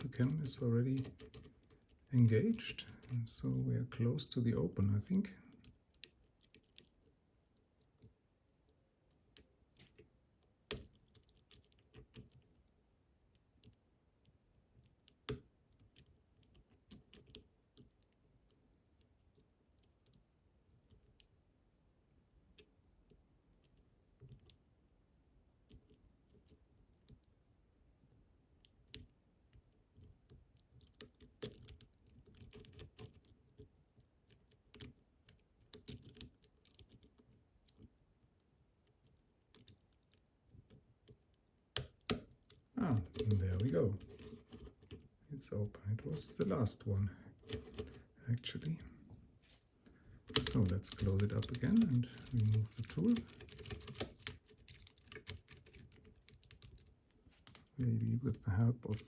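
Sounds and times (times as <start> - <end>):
lock pick clicking in a lock: 30.0 - 33.7, 34.3 - 37.9, 50.2 - 56.9.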